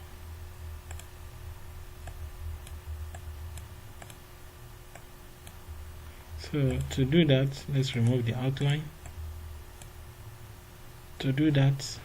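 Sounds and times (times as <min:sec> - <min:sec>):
low steady hum: 0:00.0 - 0:12.0
computer mouse clicks: 0:00.8 - 0:01.1, 0:02.0 - 0:04.2, 0:04.9 - 0:05.6, 0:06.7 - 0:07.0, 0:09.8 - 0:10.0.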